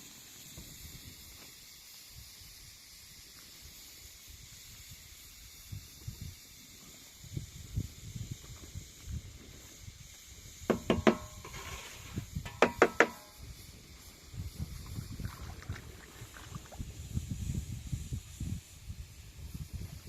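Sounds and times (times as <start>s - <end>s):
sharp ringing knocks: 10.7s - 11.6s, 12.4s - 13.4s.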